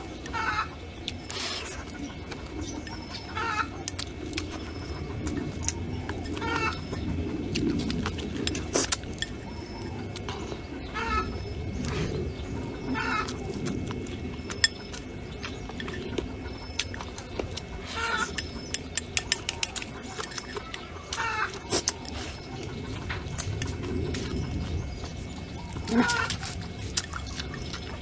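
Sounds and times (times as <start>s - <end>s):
animal calling: 19.6s - 26.7s.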